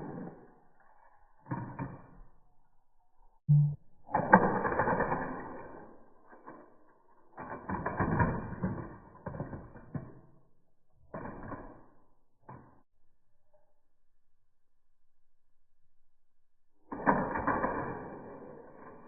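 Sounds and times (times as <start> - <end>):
toy cars clattering: 4.2 - 12.7, 16.9 - 19.0.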